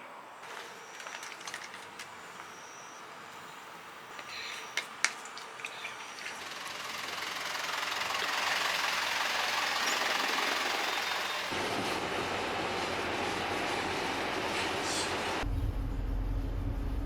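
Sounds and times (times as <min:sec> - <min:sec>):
bus engine and tyres: 0:00.4 - 0:05.2, 0:06.3 - 0:17.0
low engine rumble: 0:06.2 - 0:17.0.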